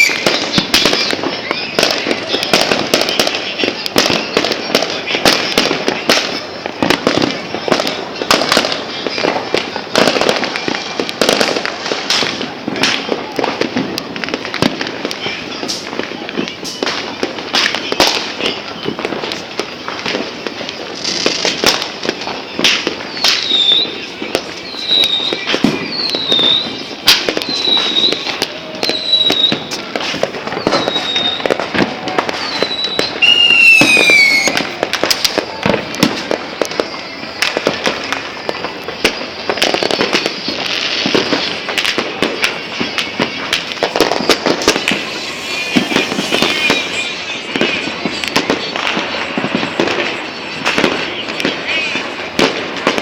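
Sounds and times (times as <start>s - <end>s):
high falling whistle: 0.0s - 1.9s, 24.6s - 29.8s, 30.5s - 34.6s, 43.8s - 48.9s
fireworks and firecrackers banging: 0.0s - 53.0s.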